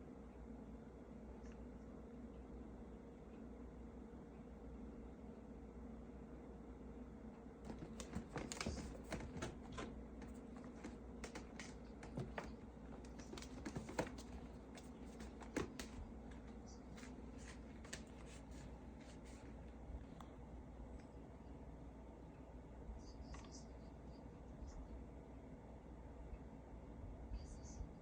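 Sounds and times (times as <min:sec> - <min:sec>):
cat claws clicking on floor: 0:07.7 - 0:16.4.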